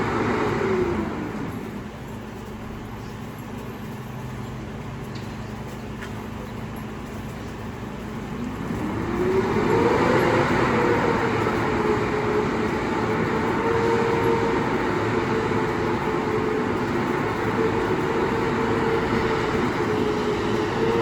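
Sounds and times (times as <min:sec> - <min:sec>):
garbage truck engine revving: 0:08.2 - 0:21.0.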